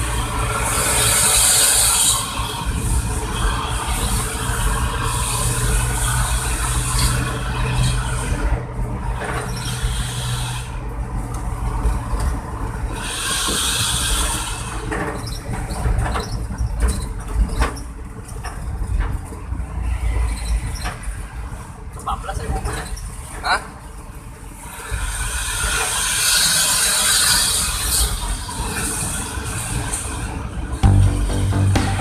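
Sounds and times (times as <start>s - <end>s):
truck engine low drone: 0.0s - 13.1s, 30.2s - 32.0s.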